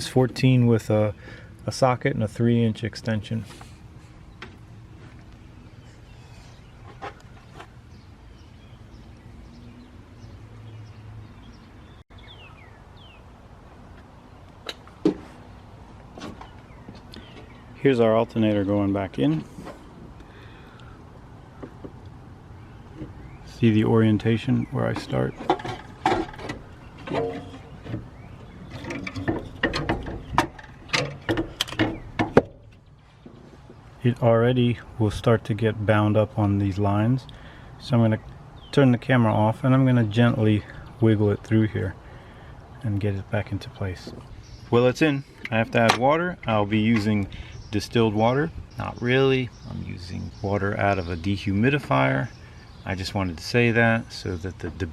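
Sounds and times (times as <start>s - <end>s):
small birds chirping: 3.5s - 54.9s
metallic clicks and knocks: 25.0s - 32.8s.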